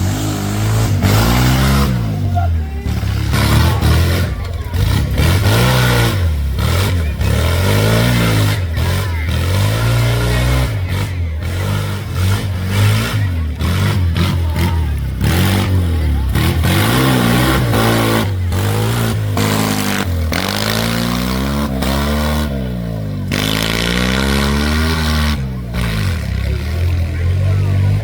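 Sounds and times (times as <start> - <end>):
tractor engine revving: 0.0 - 28.0.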